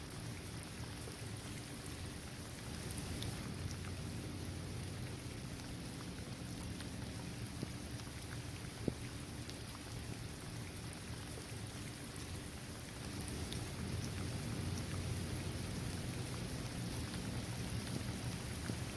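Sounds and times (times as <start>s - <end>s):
steady rain on hard surface: 0.0s - 18.9s.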